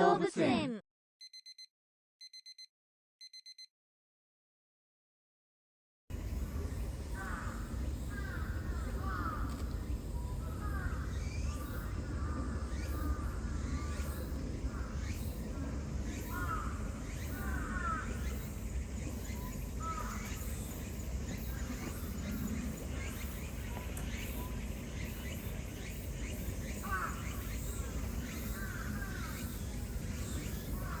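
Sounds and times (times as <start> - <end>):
steady low rumble: 6.1 - 16.0
birds calling: 6.2 - 31.0.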